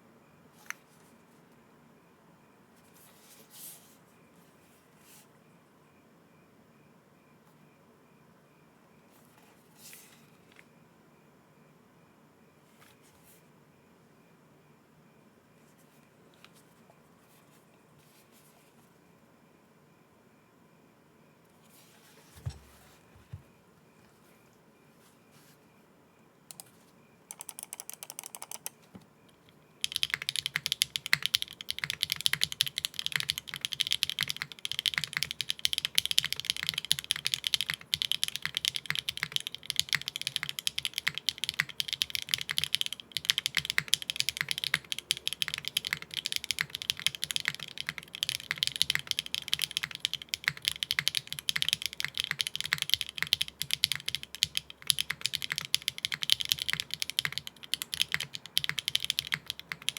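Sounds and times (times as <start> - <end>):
fast mechanical keyboard typing: 27.3 - 28.8, 29.8 - 59.9.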